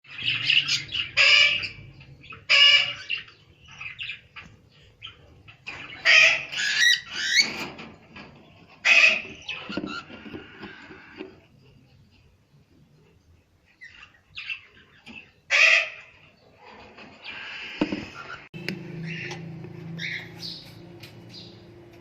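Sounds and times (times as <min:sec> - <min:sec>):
parrots calling harshly: 0:00.1 - 0:04.2, 0:05.6 - 0:07.6, 0:08.8 - 0:11.2, 0:15.5 - 0:16.3, 0:20.0 - 0:20.6
parrots chirping: 0:00.1 - 0:07.7, 0:08.8 - 0:11.2, 0:13.7 - 0:16.4, 0:17.2 - 0:21.6.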